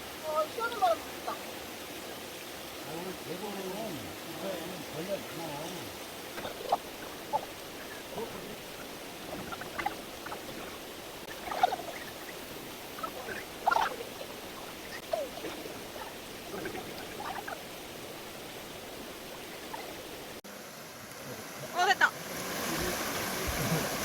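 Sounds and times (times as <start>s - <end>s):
stream rushing: 0.0s - 24.0s
faint short calls: 6.3s - 20.3s.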